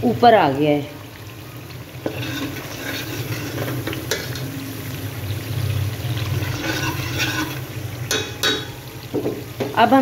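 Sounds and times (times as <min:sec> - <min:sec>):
masala sizzling in oil: 0:00.0 - 0:10.0
spatula knocking against pan: 0:08.1 - 0:09.8.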